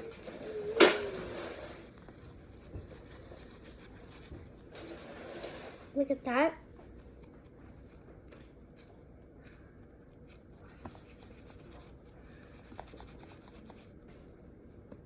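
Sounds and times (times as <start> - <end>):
foam putty rubbing and rustling: 10.2 - 14.0.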